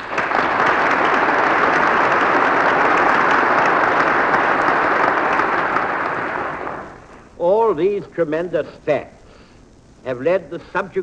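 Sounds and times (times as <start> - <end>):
audience applause: 0.0 - 7.2.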